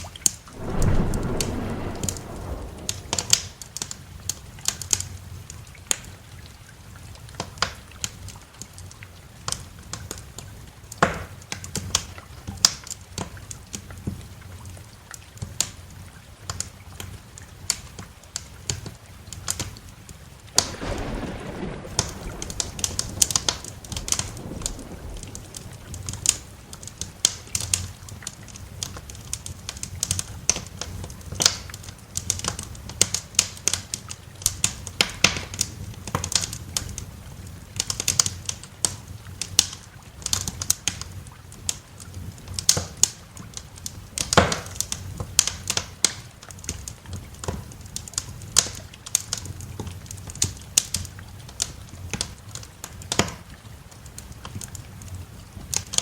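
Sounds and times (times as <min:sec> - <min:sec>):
low steady rumble: 0:00.5 - 0:03.6
wood fire crackling: 0:00.5 - 0:03.9, 0:20.5 - 0:37.1.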